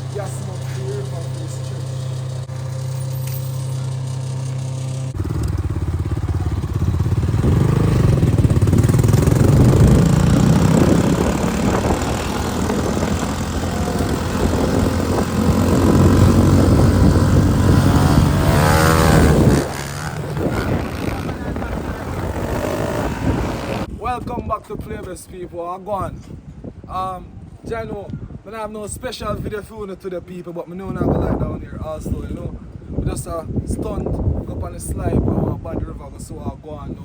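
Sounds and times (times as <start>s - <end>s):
motorcycle engine revving: 0.0s - 23.9s
steady low hum: 0.0s - 23.9s.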